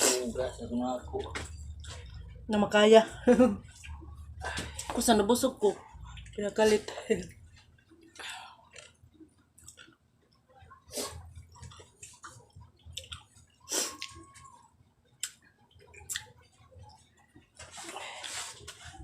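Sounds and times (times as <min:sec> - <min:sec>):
person chewing: 0:07.4 - 0:18.7.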